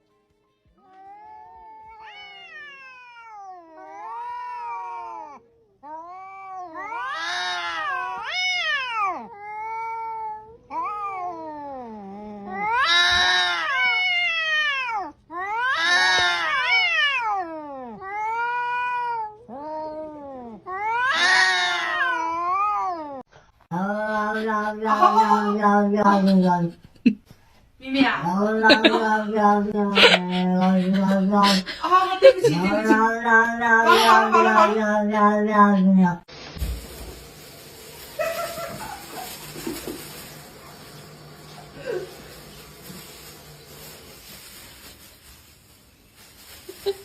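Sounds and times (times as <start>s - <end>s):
cat yowling: 0.9s - 23.2s.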